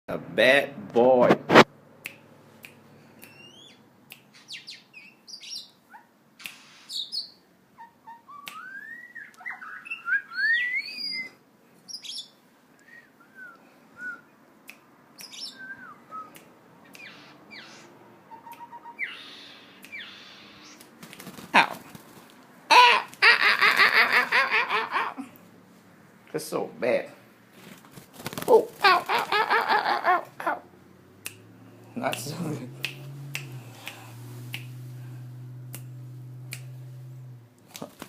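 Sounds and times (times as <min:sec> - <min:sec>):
bird rising whistles: 0:06.9 - 0:12.3, 0:15.2 - 0:16.3, 0:17.0 - 0:20.8
bird clicks and chirps: 0:15.2 - 0:15.6, 0:16.4 - 0:17.8, 0:18.4 - 0:21.4.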